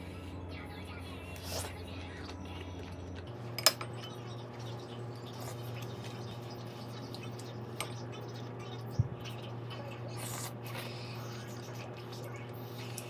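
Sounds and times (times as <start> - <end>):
steady low hum: 0.0 - 13.0
cutlery clinking against dish: 3.6 - 3.9.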